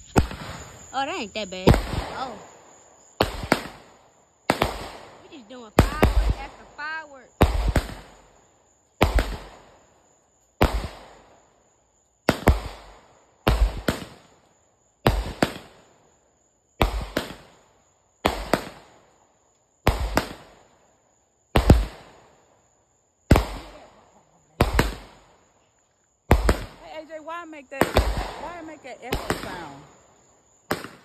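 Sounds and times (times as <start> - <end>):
fireworks bangs with echo: 0.0 - 1.0, 1.6 - 8.4, 9.0 - 9.9, 10.6 - 11.4, 12.2 - 14.4, 15.0 - 16.0, 16.8 - 19.1, 19.8 - 20.8, 21.5 - 22.4, 23.3 - 24.0, 24.6 - 25.4, 26.3 - 30.0, 30.6 - 31.0.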